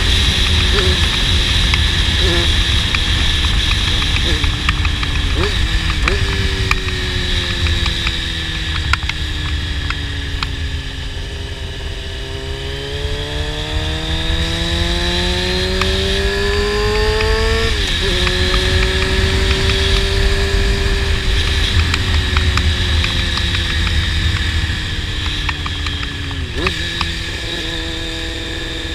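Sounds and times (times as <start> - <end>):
motorcycle engine accelerating: 0.0 - 28.9
wind rumble on microphone: 0.0 - 28.9.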